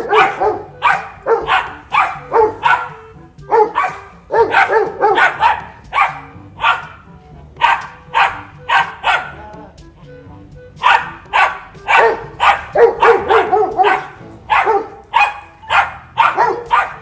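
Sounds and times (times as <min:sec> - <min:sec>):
dog barking: 0:00.0 - 0:07.0, 0:07.6 - 0:09.4, 0:10.8 - 0:17.0.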